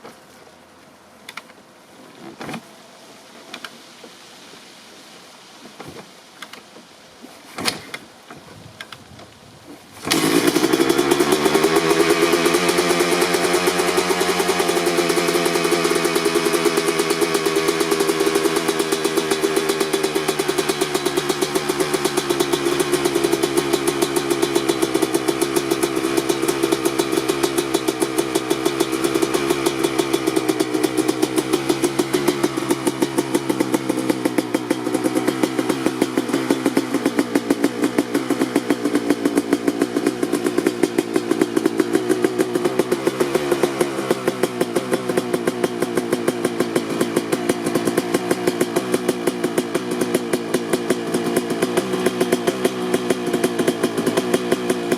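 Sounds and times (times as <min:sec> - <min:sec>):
motorcycle engine idling: 0:10.0 - 0:54.9.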